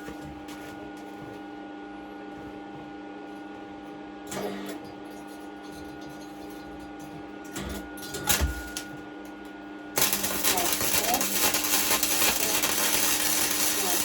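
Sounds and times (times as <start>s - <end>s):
welding machine humming: 8.2s - 14.0s.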